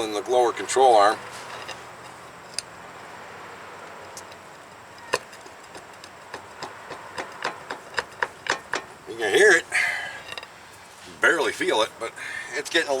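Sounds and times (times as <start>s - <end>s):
ball joint clicking: 1.5s - 2.8s, 3.8s - 9.2s.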